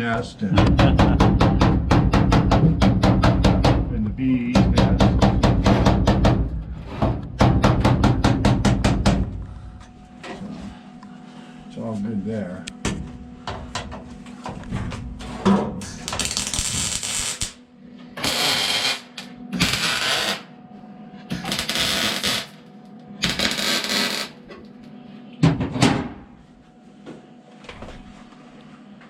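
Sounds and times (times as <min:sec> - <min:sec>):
crackling weld bursts: 0:16.0 - 0:17.6, 0:18.2 - 0:20.5, 0:21.4 - 0:22.6, 0:23.2 - 0:24.4.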